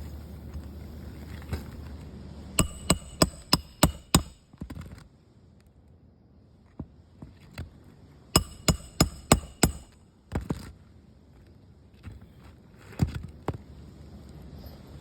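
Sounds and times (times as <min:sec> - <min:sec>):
steady low hum: 0:00.0 - 0:04.7, 0:08.2 - 0:10.2
hammer striking metal tool: 0:02.6 - 0:04.4, 0:08.4 - 0:10.0.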